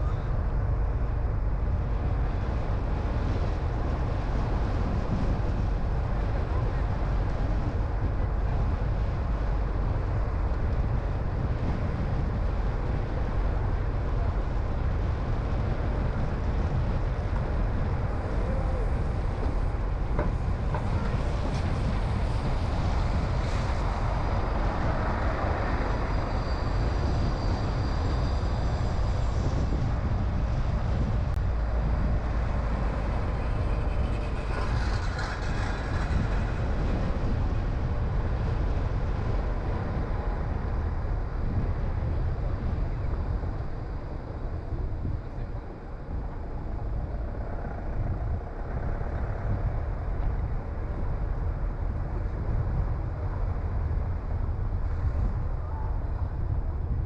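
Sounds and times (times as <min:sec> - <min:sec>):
car road and wind noise: 0:00.0 - 0:57.0.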